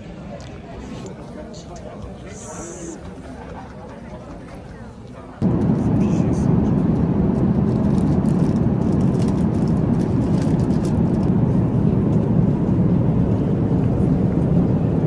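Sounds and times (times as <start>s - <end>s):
steady engine drone: 5.4s - 15.0s.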